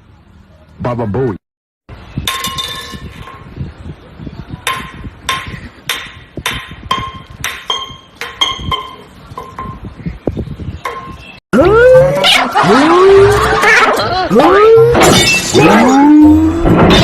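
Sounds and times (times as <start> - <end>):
ringing knocks on hard object: 4.7 - 9.9.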